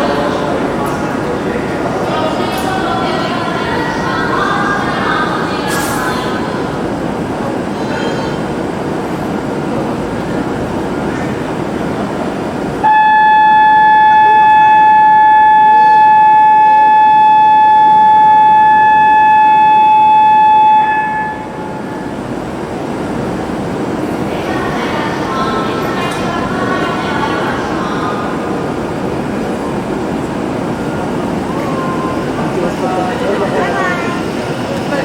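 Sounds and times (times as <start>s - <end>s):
train platform noise: 0.0s - 35.0s
steady electronic warning tone: 12.8s - 22.1s.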